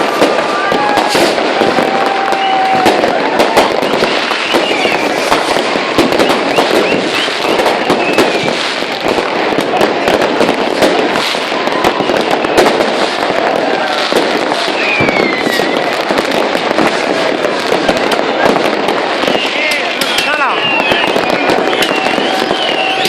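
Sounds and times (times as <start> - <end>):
fireworks and firecrackers banging: 0.0 - 23.0.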